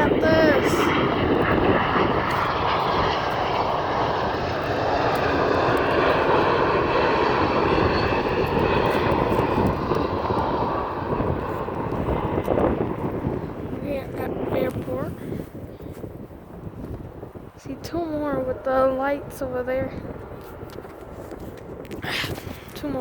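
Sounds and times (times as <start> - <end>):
airliner engines overhead: 0.0 - 23.0.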